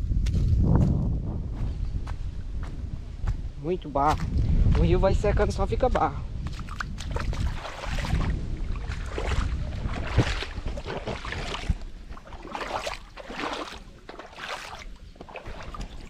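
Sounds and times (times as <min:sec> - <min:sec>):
wind rumbling on microphone: 0:00.0 - 0:16.0
footsteps squelching in mud: 0:06.4 - 0:16.0.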